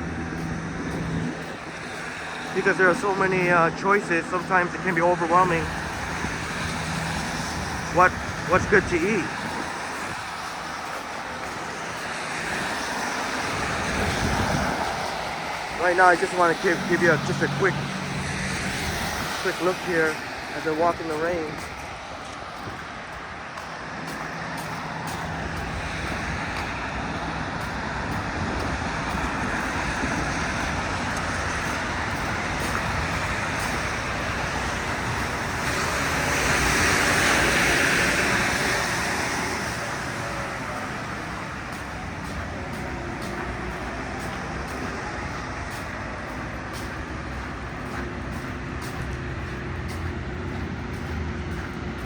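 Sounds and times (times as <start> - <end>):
running engines: 0.0 - 52.0
tyres hissing on wet pavement: 0.0 - 52.0
vehicle passing close: 0.0 - 52.0.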